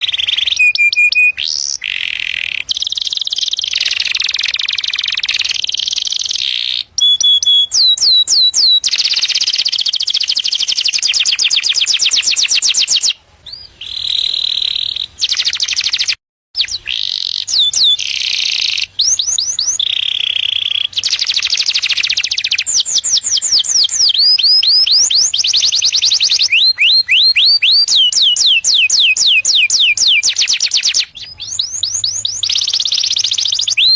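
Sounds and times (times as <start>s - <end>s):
canary singing fast trills: 0.0s - 33.9s.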